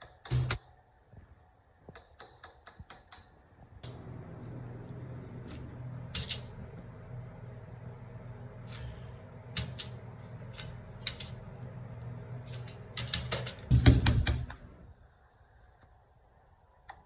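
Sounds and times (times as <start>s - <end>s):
steady low machine hum: 3.8s - 15.1s.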